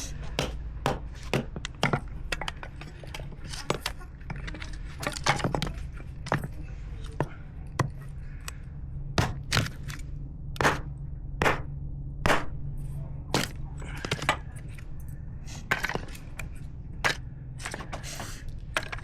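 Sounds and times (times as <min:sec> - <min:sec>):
steady low hum: 0:00.0 - 0:19.0
sharp knocks: 0:00.4 - 0:02.0, 0:09.2 - 0:09.7, 0:10.6 - 0:12.6.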